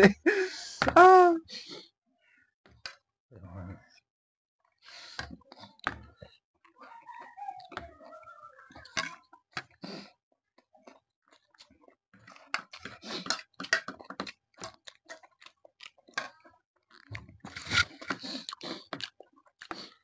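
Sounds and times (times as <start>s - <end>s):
chewing and crunching food: 5.4s - 20.0s.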